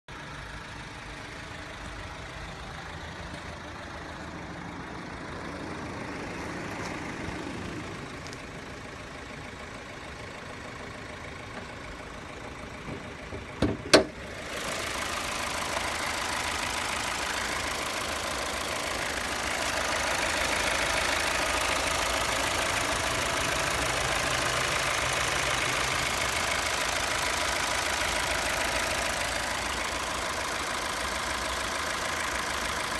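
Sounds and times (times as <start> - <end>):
diesel engine idling: 0.1 - 32.9.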